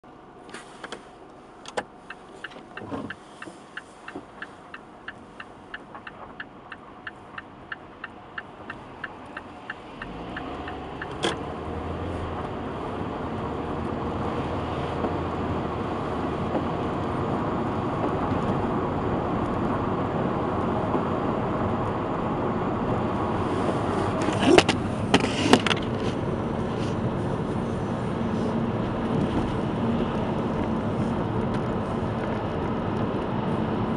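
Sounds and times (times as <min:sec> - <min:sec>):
car engine and road noise: 0:00.0 - 0:33.9
steady ticking: 0:02.1 - 0:11.2.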